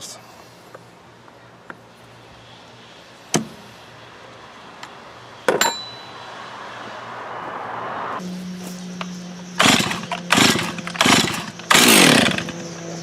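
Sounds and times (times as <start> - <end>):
ringing metallic clink: 5.5 - 6.2.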